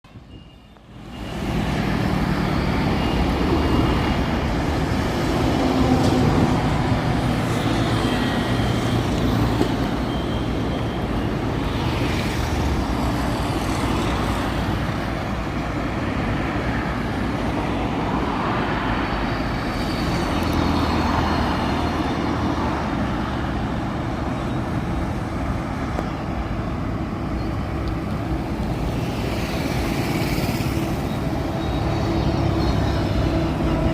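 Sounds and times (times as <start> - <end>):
traffic passing in heavy rain: 1.3 - 27.3, 28.3 - 33.9.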